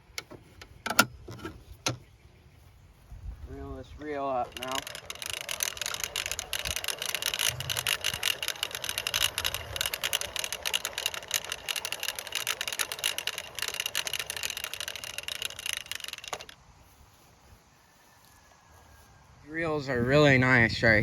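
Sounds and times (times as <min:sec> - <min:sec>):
fence reel ratchet clicking: 0:03.8 - 0:16.6.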